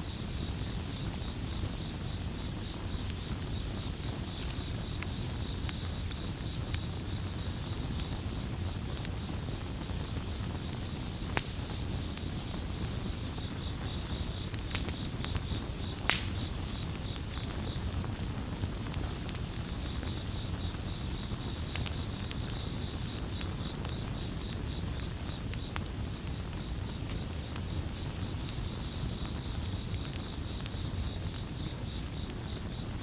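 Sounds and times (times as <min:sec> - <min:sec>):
campfire crackling and popping: 0:00.0 - 0:33.0
cricket chirping: 0:00.0 - 0:33.0.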